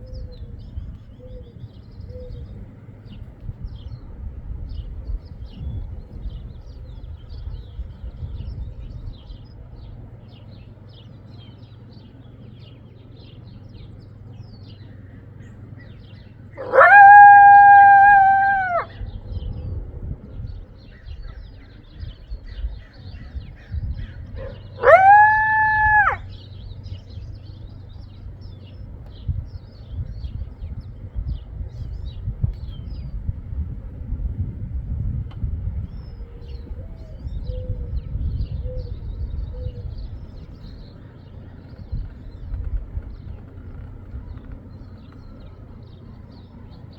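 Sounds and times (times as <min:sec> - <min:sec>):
low steady hum: 0:00.0 - 0:46.9
coyote howling: 0:16.5 - 0:19.7, 0:23.7 - 0:27.2.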